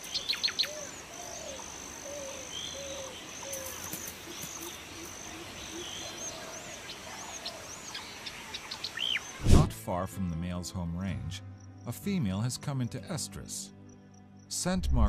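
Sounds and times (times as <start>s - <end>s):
birds chirping: 0.0s - 9.4s
lower repeated bird calls: 0.0s - 9.4s.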